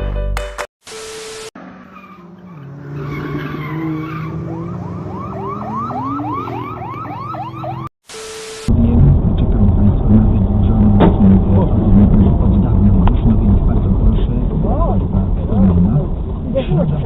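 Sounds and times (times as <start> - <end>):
car engine running: 8.7 - 17.0.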